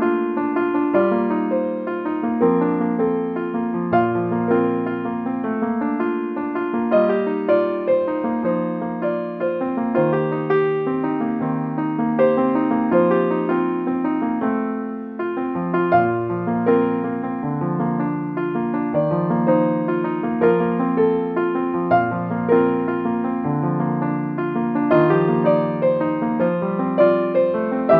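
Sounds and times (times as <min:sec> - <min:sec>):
slow gentle piano piece: 0:00.0 - 0:27.9.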